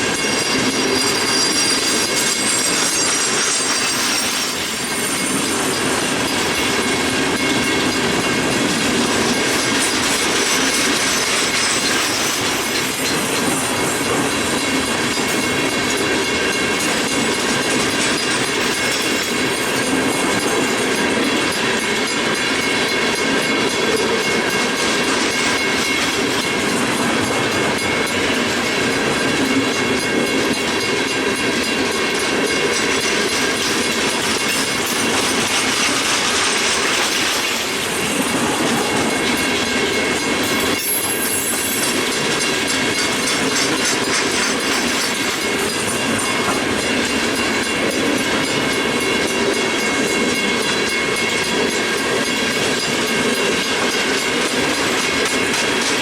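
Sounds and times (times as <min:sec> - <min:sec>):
freight train rumbling past: 0:00.0 - 0:56.0
wheels clicking over rail joints: 0:00.0 - 0:56.0.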